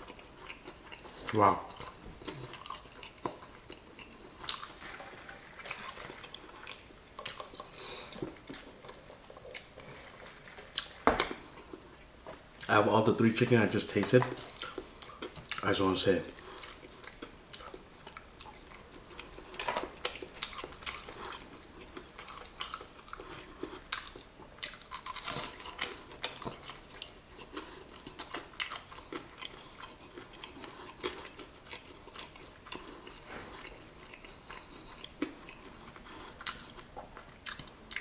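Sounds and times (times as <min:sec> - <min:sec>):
crunching crispy fried chicken: 0:14.4 - 0:38.0.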